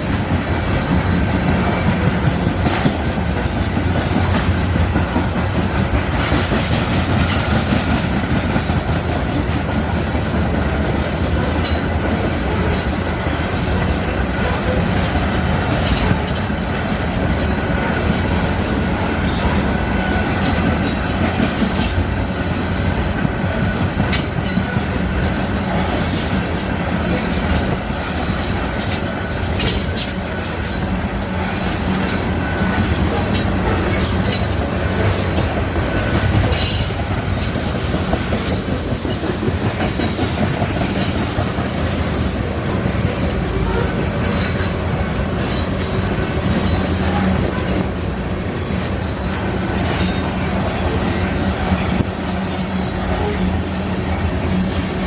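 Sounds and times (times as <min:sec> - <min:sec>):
train cars rumbling past: 0:00.0 - 0:55.0
wheels clicking over rail joints: 0:00.0 - 0:55.0.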